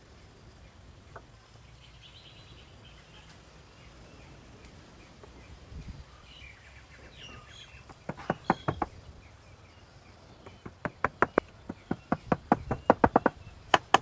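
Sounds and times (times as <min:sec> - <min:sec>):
birds chirping: 0:00.7 - 0:14.0
sharp knocks on wood: 0:07.9 - 0:09.0, 0:10.4 - 0:14.0.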